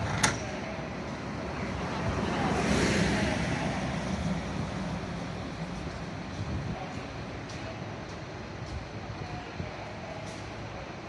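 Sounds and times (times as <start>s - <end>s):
vehicle passing: 1.3s - 6.3s.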